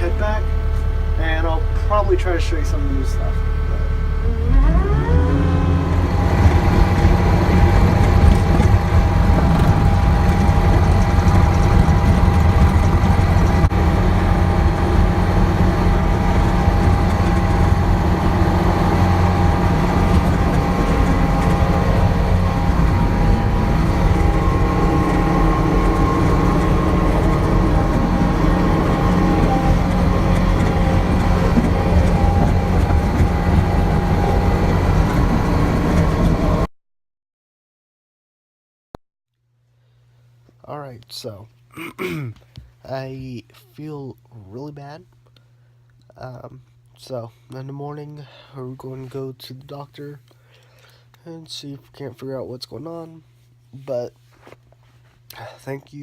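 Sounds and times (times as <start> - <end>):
diesel engine revving and running: 0.0 - 36.7
thin steady whine: 0.0 - 36.7.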